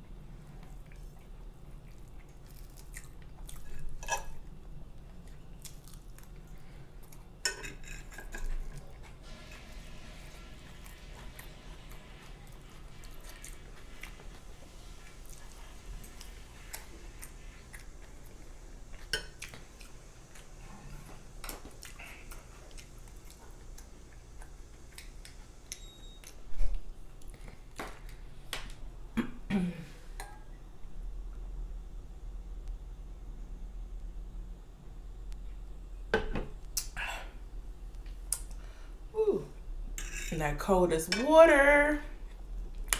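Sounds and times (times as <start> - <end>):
chewing and mouth sounds: 0.4 - 7.4, 15.2 - 26.4.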